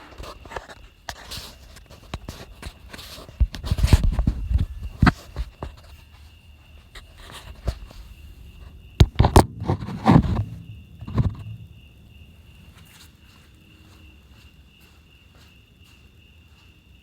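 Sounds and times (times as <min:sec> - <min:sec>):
footsteps: 0:02.9 - 0:16.8
handling knocks and thumps: 0:07.3 - 0:12.2.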